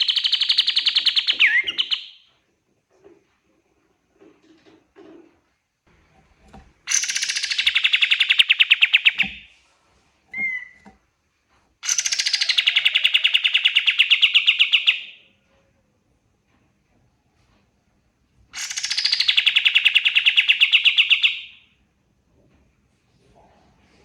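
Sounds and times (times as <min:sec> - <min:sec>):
songbird trilling: 0:06.9 - 0:09.4.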